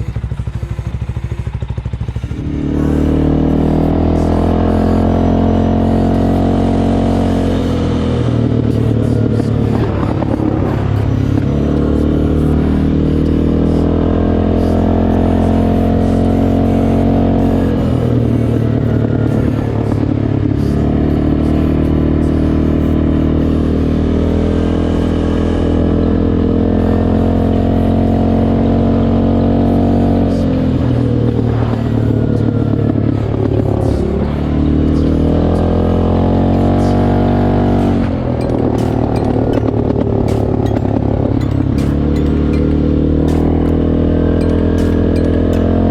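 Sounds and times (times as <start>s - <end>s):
atv engine revving: 0.0s - 45.9s.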